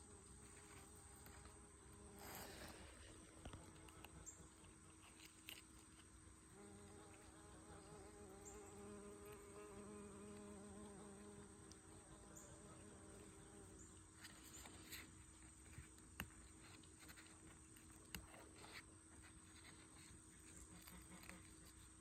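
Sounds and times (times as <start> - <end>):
insect wings buzzing: 6.4 - 15.4.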